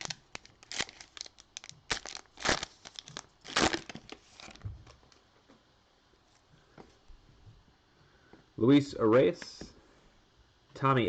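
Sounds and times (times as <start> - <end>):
plastic wrapper crinkling and tearing: 0.0 - 4.6.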